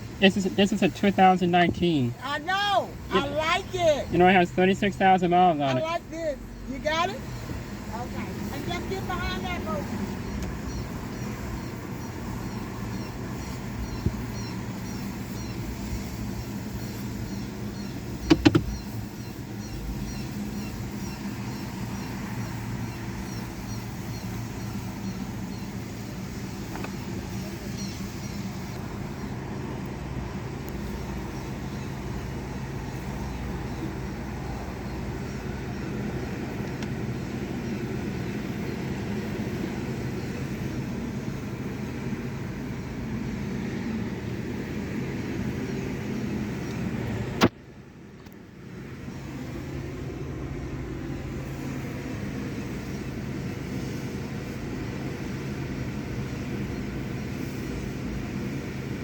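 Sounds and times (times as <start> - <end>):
car wash mechanical rumble: 0.0 - 59.0
sharp click: 18.2 - 18.8.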